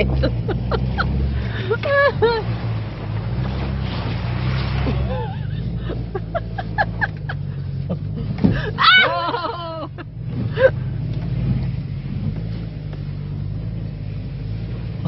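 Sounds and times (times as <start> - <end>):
person laughing: 0.0 - 2.5, 4.8 - 10.8
car engine running at low revs: 0.0 - 15.0.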